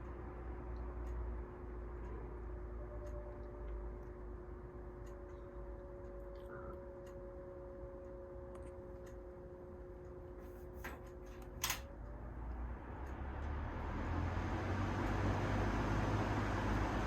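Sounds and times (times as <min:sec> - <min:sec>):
fan motor humming: 0:00.0 - 0:17.0
sharp click: 0:10.8 - 0:11.9.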